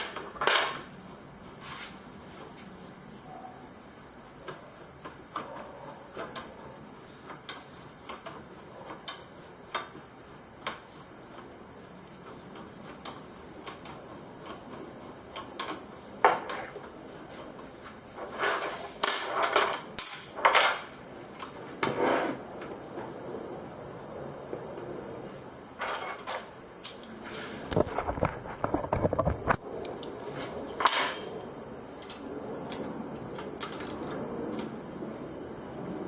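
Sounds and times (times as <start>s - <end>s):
metal tools clinking: 18.4s - 21.0s, 25.8s - 27.3s, 29.4s - 31.5s.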